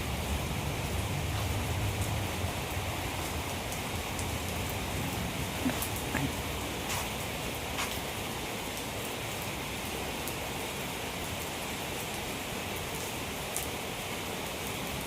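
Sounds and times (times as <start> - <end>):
raindrops ticking: 0.0 - 10.5.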